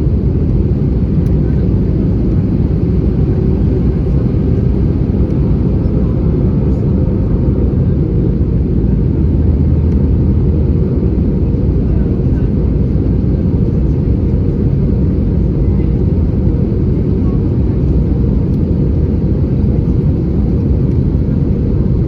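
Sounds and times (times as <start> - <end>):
airplane cabin rumble: 0.0 - 22.0.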